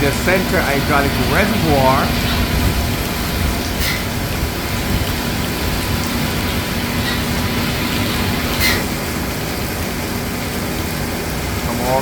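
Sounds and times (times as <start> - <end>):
hydraulic pump humming: 0.0 - 12.0.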